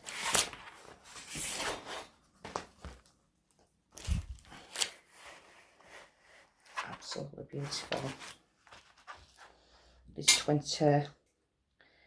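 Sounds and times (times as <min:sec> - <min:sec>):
canvas and plastic packaging crinkling: 0:03.9 - 0:09.5.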